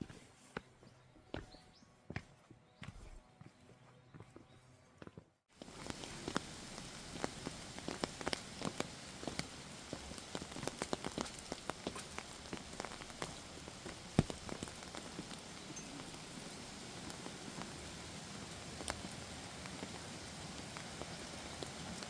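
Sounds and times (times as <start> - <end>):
rain pattering: 5.5 - 22.0.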